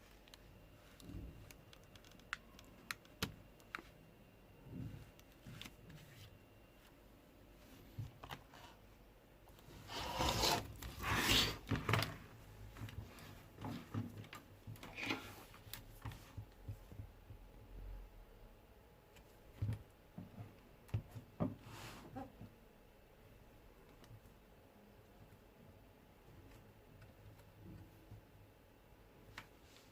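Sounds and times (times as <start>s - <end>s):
handling rubbing and scraping: 9.6s - 14.1s.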